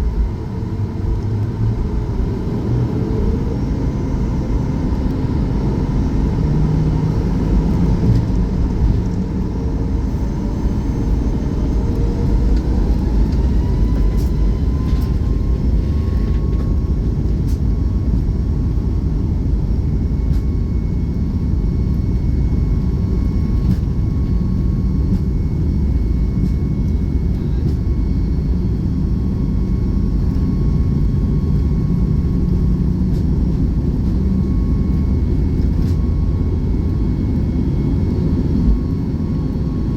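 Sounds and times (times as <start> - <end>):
engine whine rising in pitch: 0.0 - 17.6
aircraft engines low rumble: 0.0 - 39.9.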